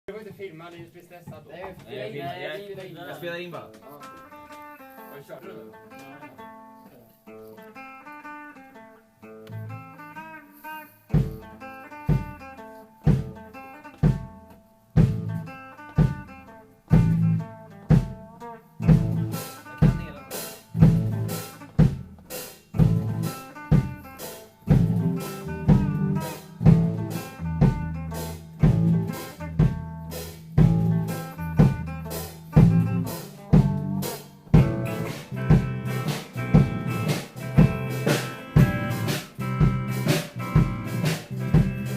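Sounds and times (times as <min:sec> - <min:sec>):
guitar playing: 0:01.7 - 0:41.9
rock band playing: 0:03.2 - 0:41.9
drum hits: 0:11.1 - 0:41.9.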